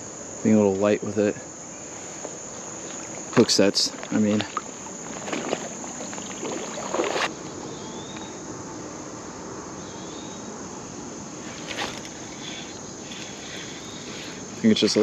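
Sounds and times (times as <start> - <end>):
background hiss: 0.0 - 15.0
crickets chirping: 0.0 - 15.0
rustling: 1.8 - 7.4, 11.4 - 14.6.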